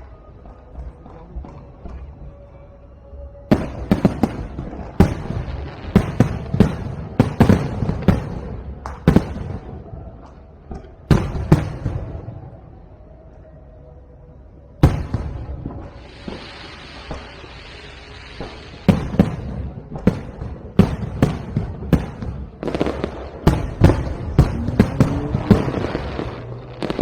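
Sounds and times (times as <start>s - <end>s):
fireworks bangs with rumbling tails: 3.5s - 12.6s, 14.8s - 27.0s.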